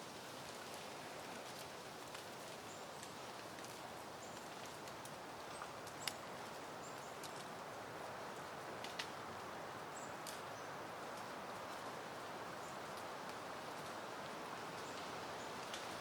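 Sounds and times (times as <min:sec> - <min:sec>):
wind rustling through foliage: 0:00.0 - 0:16.0.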